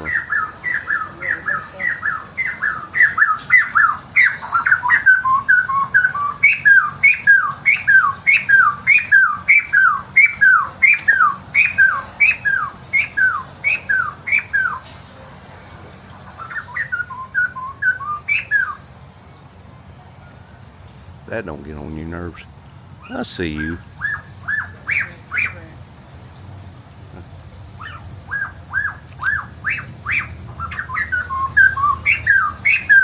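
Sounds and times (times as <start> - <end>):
bird laughing call: 0.0 - 14.8.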